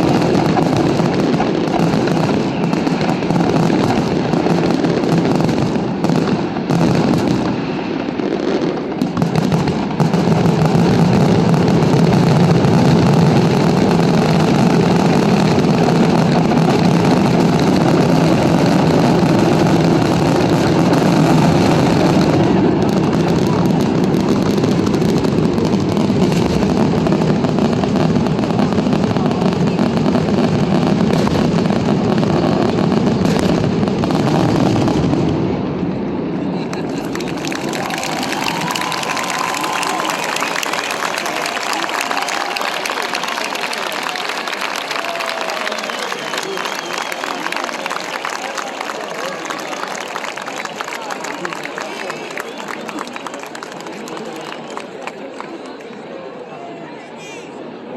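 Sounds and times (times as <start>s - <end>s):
fireworks rumbling and crackling: 0.0s - 55.9s.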